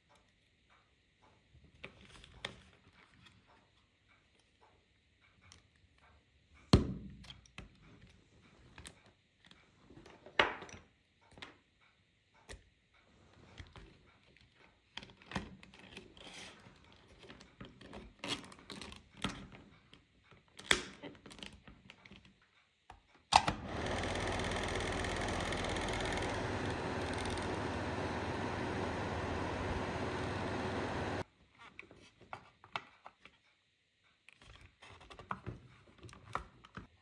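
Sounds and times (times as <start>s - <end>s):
hair dryer fan running: 23.4s - 31.2s.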